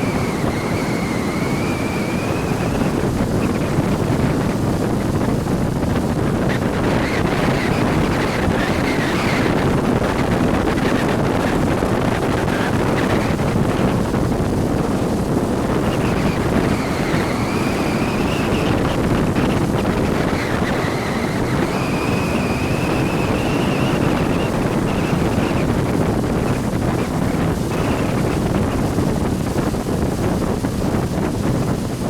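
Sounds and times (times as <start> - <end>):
water rushing: 0.0 - 32.0
wind buffeting the microphone: 0.0 - 32.0.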